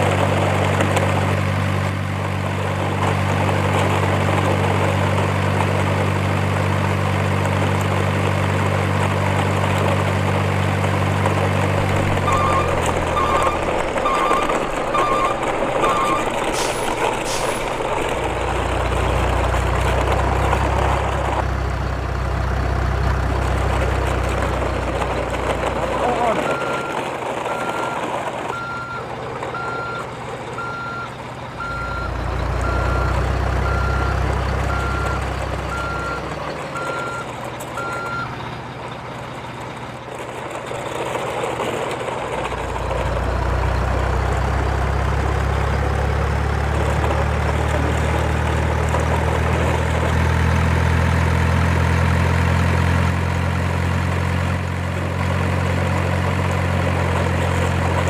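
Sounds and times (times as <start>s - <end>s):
truck engine running: 0.0s - 58.0s
truck reversing alarm beeping: 11.5s - 18.8s, 26.0s - 39.6s.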